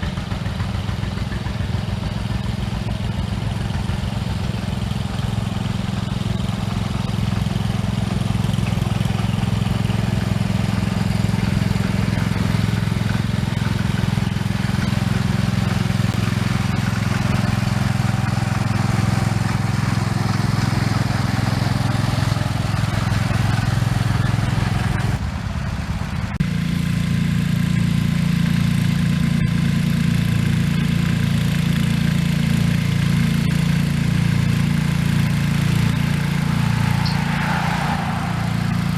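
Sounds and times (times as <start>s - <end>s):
garden tractor engine running: 0.0s - 38.9s.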